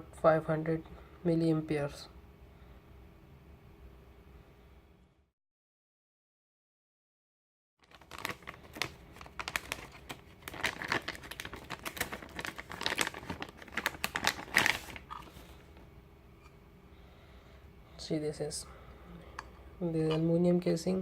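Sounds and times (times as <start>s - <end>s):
packaging crinkling and rustling: 7.8s - 15.9s.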